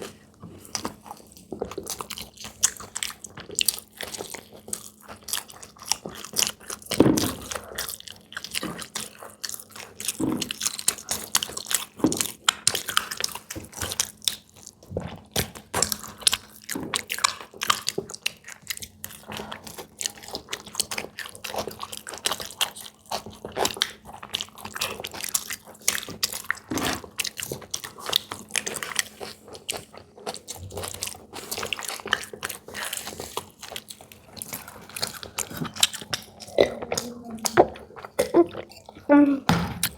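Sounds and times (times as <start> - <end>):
person chewing crunchy snack: 0.0 - 39.9.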